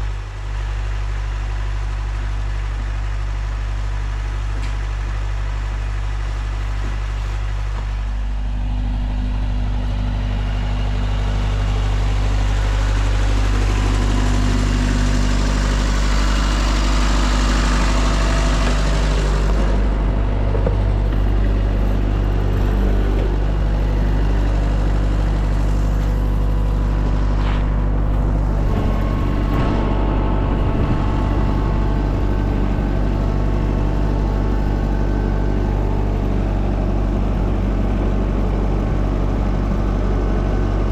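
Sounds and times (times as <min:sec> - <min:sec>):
engine running: 0:00.0 - 0:40.9
broad rushing noise: 0:11.8 - 0:33.5.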